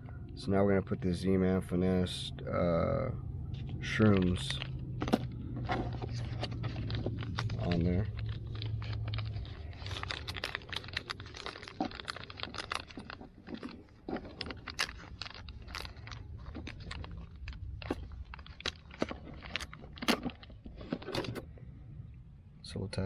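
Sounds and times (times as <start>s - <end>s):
plastic packaging crinkling: 3.6s - 21.5s.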